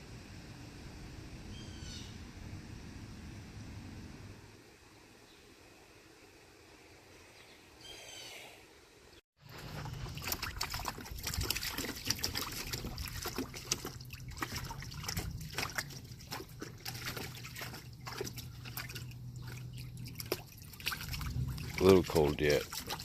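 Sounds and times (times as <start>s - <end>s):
water trickling and splashing: 9.4s - 23.0s.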